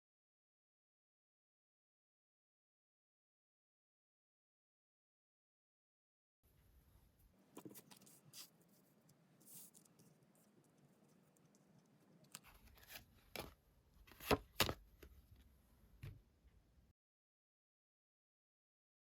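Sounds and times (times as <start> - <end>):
cards rustling and tapping: 7.5 - 15.2.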